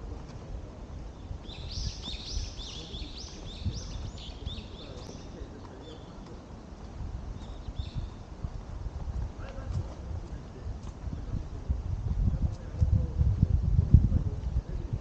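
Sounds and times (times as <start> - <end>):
songbird chirping: 0.0 - 8.4
footsteps on a path: 0.0 - 11.4.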